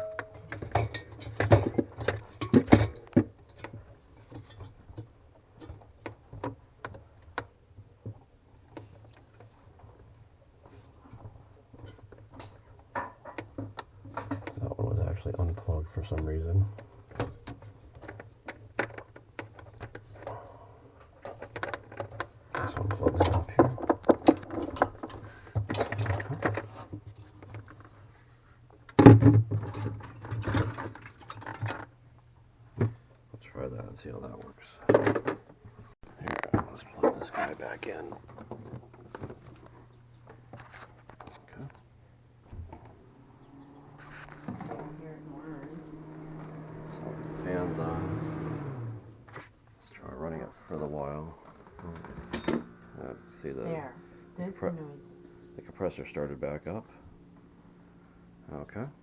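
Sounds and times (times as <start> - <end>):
low steady hum: 0.0 - 5.8, 19.9 - 59.0
plastic parts clicking and rattling: 21.1 - 27.9.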